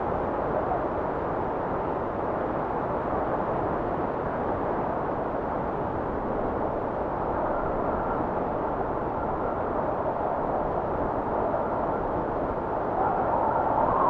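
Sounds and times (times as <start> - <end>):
blizzard wind rushing: 0.0 - 14.0
faint high wind whistle: 7.2 - 14.0.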